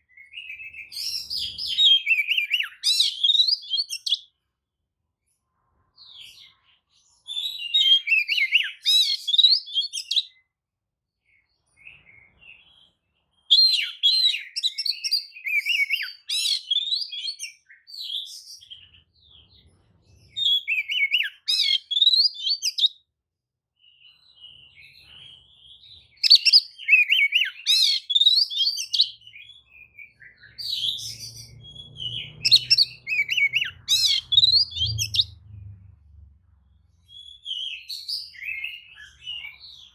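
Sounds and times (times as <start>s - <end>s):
bird singing whistled phrases: 0.1s - 4.3s, 7.3s - 10.4s, 13.5s - 18.7s, 20.4s - 23.0s, 26.2s - 35.5s, 37.1s - 39.9s.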